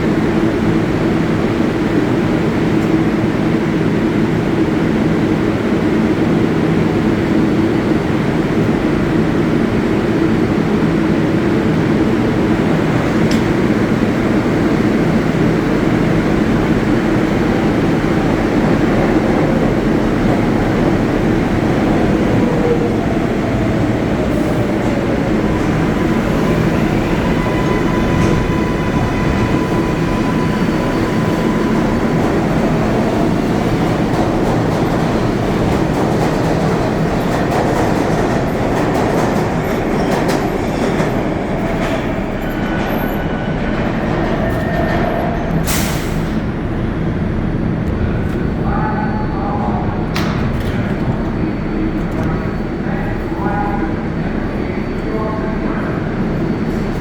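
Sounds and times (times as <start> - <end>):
train wheels rumbling on rail: 0.0 - 57.0
rail joint clicks: 12.9 - 13.7, 23.5 - 46.4.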